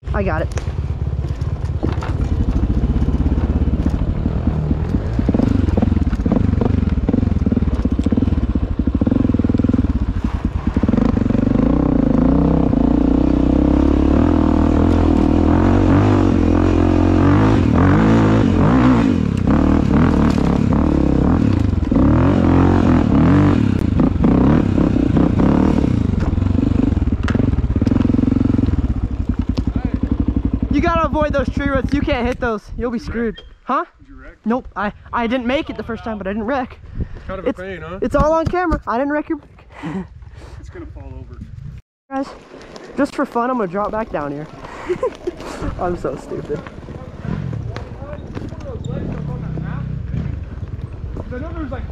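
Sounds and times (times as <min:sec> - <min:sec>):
dirt bike engine revving: 0:00.1 - 0:32.3, 0:43.0 - 0:51.8
knocks and clatter from bike: 0:00.5 - 0:11.4, 0:19.8 - 0:22.1, 0:26.0 - 0:30.6, 0:43.8 - 0:51.7.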